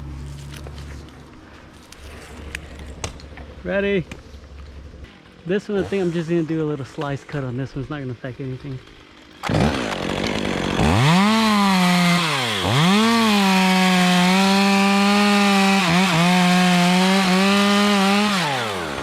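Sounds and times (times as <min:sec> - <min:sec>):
chainsaw cutting wood: 0:08.6 - 0:19.0.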